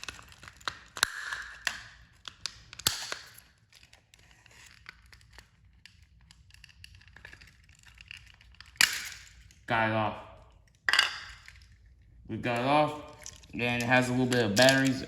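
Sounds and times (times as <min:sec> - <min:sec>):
plastic toy clicking and rustling: 0:00.0 - 0:09.6.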